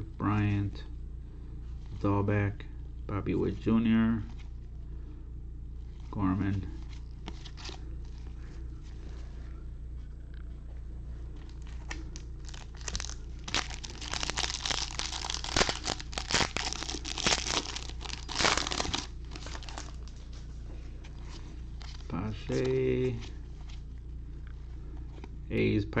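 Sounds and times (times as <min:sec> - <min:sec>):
steady low hum: 0:00.0 - 0:26.0
plastic wrapper crinkling and tearing: 0:11.4 - 0:20.4, 0:21.7 - 0:22.8.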